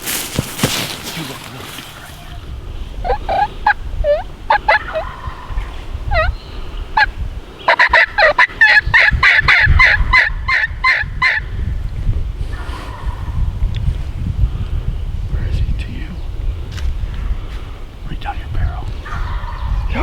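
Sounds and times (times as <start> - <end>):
turkey yelping: 3.0 - 6.4, 7.7 - 11.4, 19.0 - 19.9.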